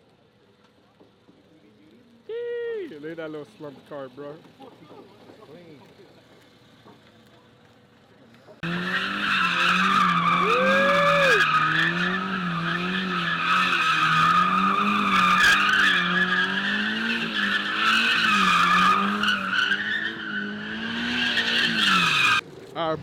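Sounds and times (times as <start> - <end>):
car engine revving high: 8.6 - 22.4
tire squeal: 8.6 - 22.4.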